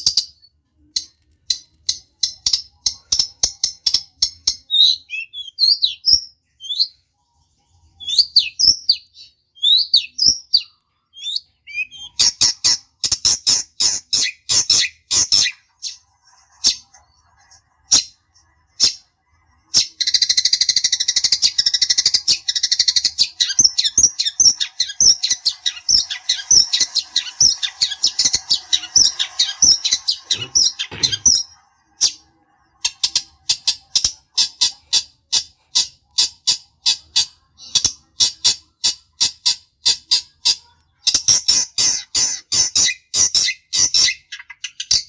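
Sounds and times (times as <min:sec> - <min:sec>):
bird harsh chattering calls: 0:19.8 - 0:32.2.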